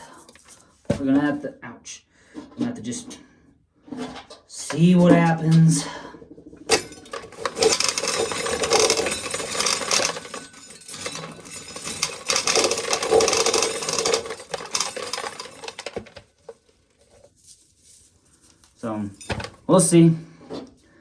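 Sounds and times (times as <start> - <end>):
corn kernels rattling off cob: 6.7 - 16.6.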